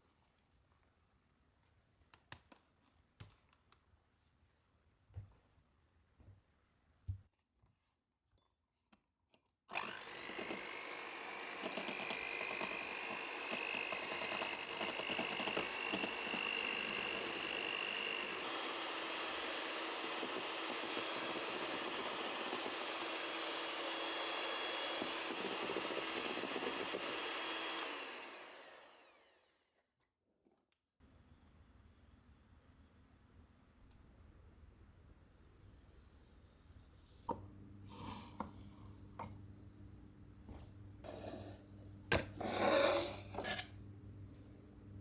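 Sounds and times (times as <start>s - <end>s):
small electric motor whine: 9.7s - 29.5s.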